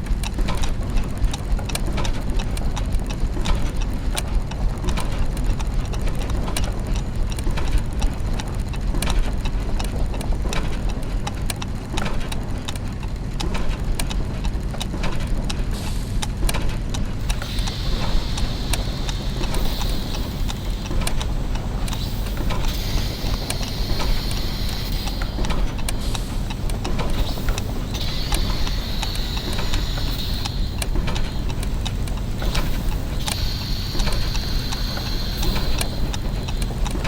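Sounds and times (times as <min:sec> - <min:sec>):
low machine hum: 0:17.1 - 0:37.0
clockwork gears ticking: 0:17.2 - 0:37.0
steady hiss: 0:17.2 - 0:37.0.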